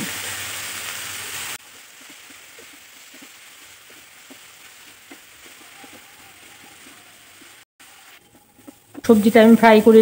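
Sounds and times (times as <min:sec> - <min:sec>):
vegetables frying in a pan: 0:00.0 - 0:10.0
wooden spatula stirring: 0:01.7 - 0:09.5.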